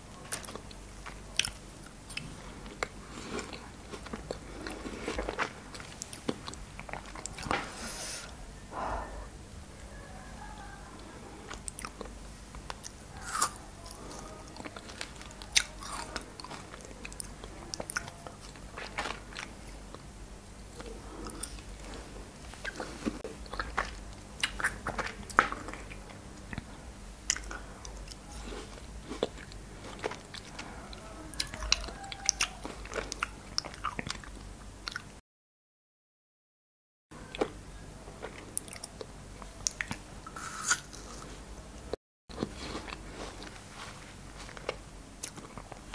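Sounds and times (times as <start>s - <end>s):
chewing frozen fruit crunches: 0.2s - 7.6s, 11.5s - 20.0s, 20.7s - 35.1s, 42.3s - 45.9s.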